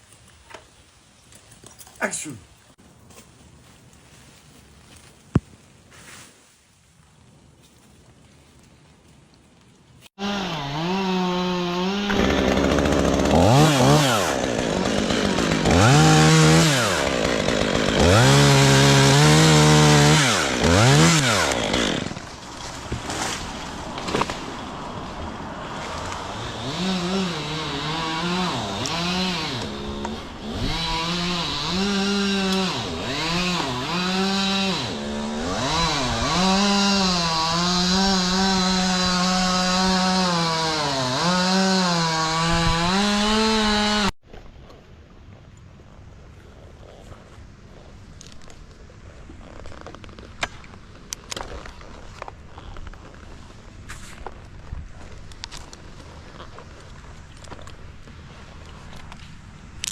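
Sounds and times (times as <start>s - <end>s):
chainsaw cutting wood: 10.2s - 44.2s.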